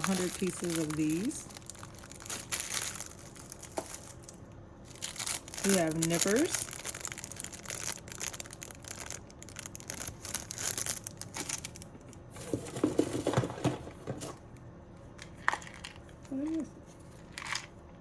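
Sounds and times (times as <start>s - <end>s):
plastic packaging crinkling: 0.0s - 13.7s.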